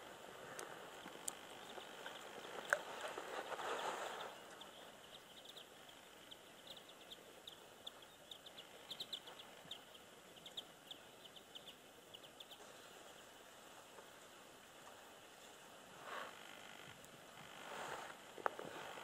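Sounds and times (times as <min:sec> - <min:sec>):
small bird chirping: 0:00.6 - 0:13.5.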